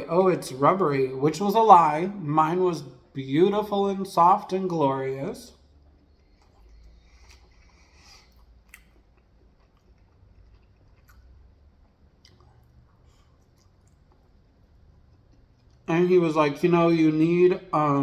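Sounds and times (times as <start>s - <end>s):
chewing food close up: 5.6s - 15.9s.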